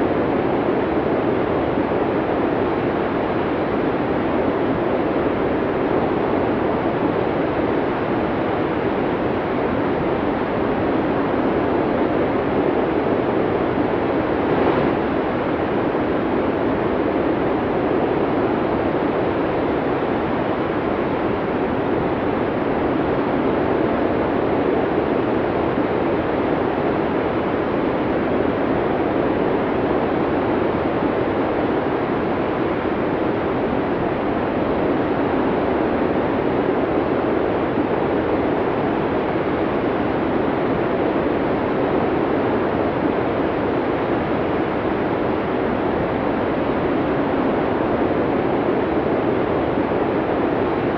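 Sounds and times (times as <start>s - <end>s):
snowstorm wind rushing: 11.0s - 21.4s.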